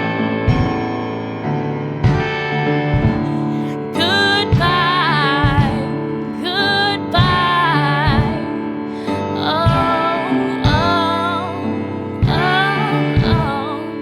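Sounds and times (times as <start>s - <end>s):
pop song with keyboard chords: 2.0s - 14.0s
person singing: 3.2s - 14.0s.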